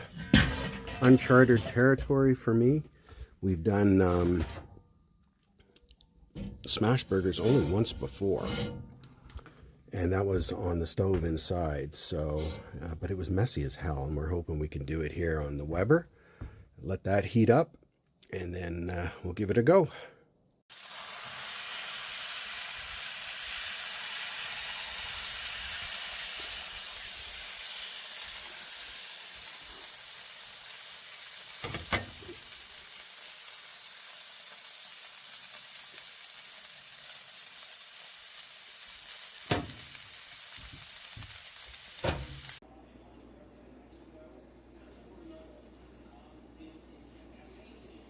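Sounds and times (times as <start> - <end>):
patties sizzling on cast iron: 20.7 - 48.0
sharp knocks on iron: 39.5 - 39.9, 42.0 - 42.6.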